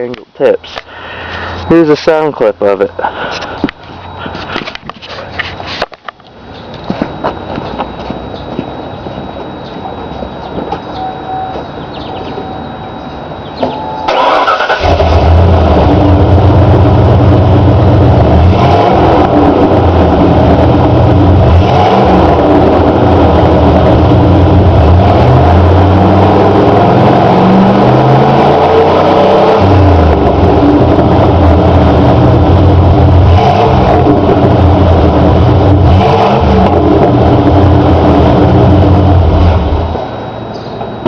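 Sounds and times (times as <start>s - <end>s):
engine running loud and low: 0.0s - 41.0s
engine cranking: 14.1s - 15.5s.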